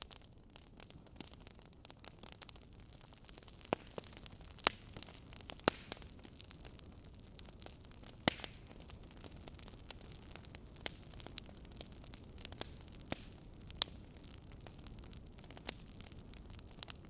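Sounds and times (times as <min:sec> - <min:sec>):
low fire hiss: 0:00.0 - 0:17.0
wood fire crackling: 0:00.0 - 0:17.0
sharp pops and snaps: 0:03.6 - 0:06.0, 0:08.2 - 0:08.6.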